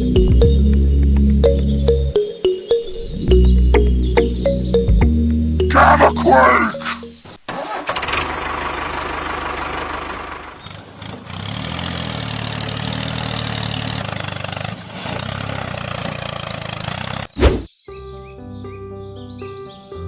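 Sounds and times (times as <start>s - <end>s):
tractor engine running: 7.5s - 17.3s.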